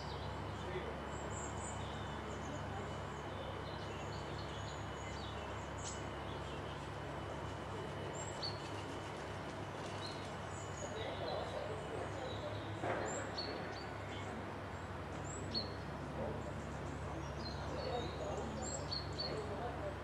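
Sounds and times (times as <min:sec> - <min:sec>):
birds chirping and singing: 0:00.0 - 0:09.0, 0:09.8 - 0:19.7
steady low hum: 0:00.0 - 0:20.0.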